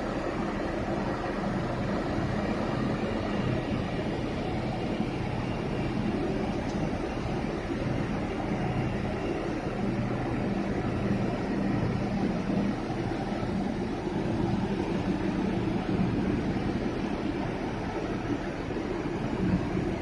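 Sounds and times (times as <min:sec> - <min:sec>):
crane engines droning: 0:00.0 - 0:20.0.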